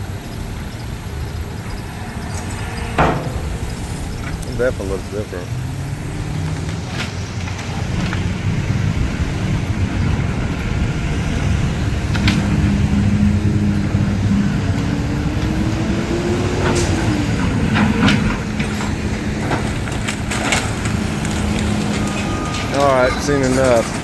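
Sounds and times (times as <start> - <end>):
vehicle engines rumbling: 0.0 - 24.0.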